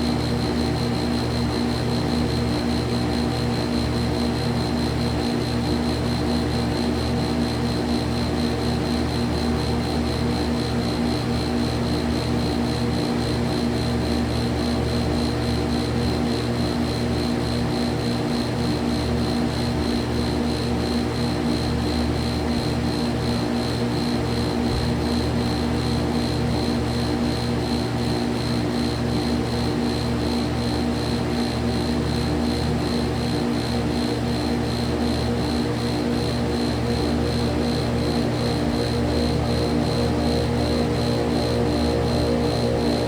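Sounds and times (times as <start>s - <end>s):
motor hum: 0.0s - 43.0s.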